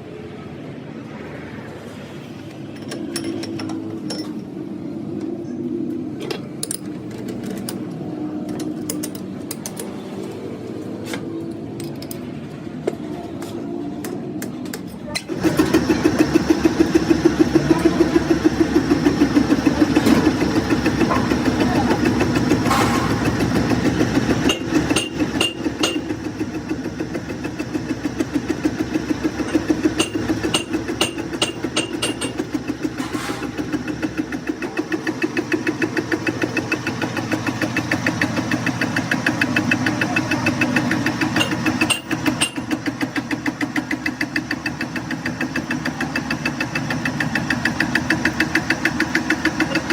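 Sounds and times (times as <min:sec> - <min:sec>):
metalworking lathe running: 0:15.3 - 0:49.9.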